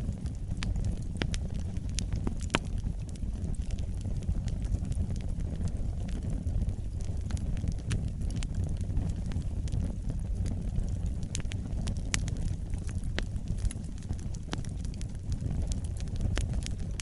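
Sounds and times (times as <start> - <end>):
fire crackling and popping: 0.0 - 17.0
flames roaring in a fireplace: 0.0 - 17.0.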